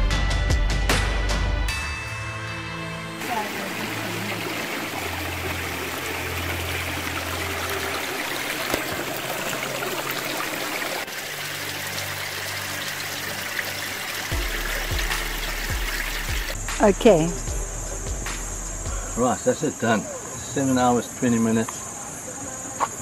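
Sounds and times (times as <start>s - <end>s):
running water rushing: 3.2s - 17.4s.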